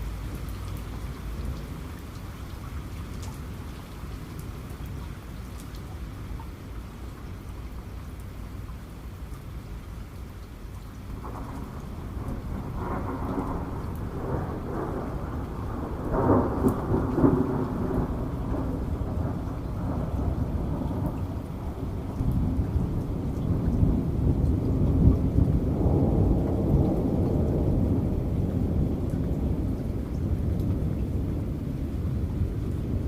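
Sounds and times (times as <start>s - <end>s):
steady rain: 0.0s - 33.0s
rolling thunder: 11.2s - 33.0s.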